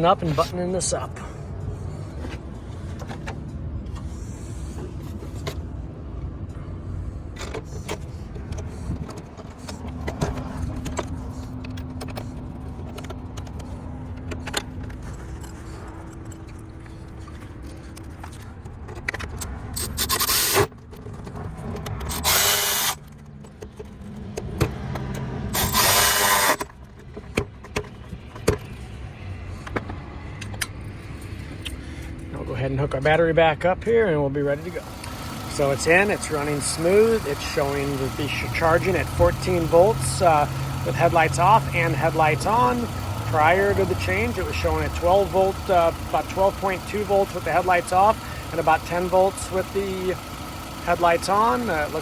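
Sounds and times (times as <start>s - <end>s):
wrenches clicking and knocking: 7.4s - 28.7s
power driver whirring: 19.9s - 20.7s, 22.0s - 23.1s, 24.7s - 26.7s, 34.4s - 52.0s.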